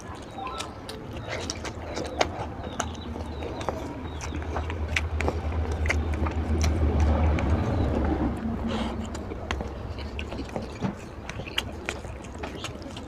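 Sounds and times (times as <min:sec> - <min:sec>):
lip smacking and mouth clicks: 0:00.0 - 0:13.0
wet chewing: 0:00.0 - 0:13.0
low rumble: 0:02.5 - 0:10.6.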